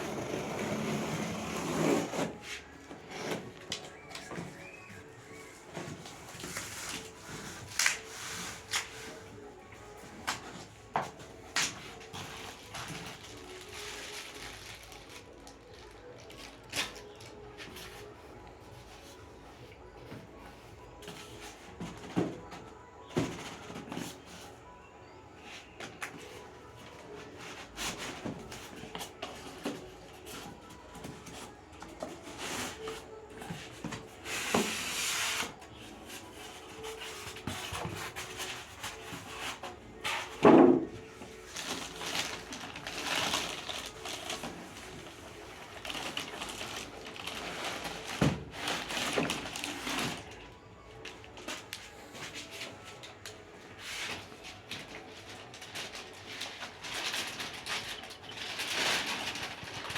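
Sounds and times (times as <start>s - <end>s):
cardboard and plastic rustling: 0.0s - 59.9s.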